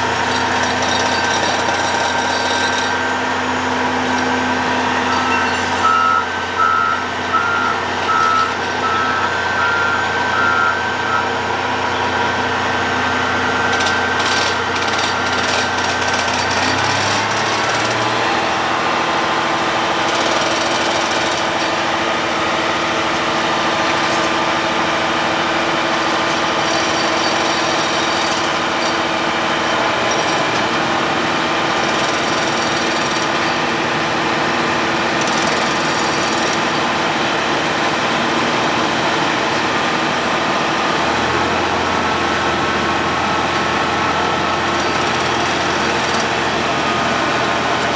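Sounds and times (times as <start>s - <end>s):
diesel engine running: 0.0s - 47.9s
reversing alarm beeping: 0.3s - 15.7s
knocks and clatter: 13.7s - 18.2s.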